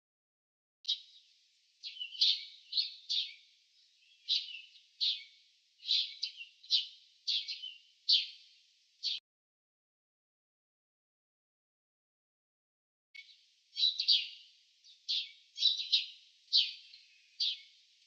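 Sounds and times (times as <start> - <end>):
small bird chirping: 0.9 - 9.2, 13.2 - 18.0.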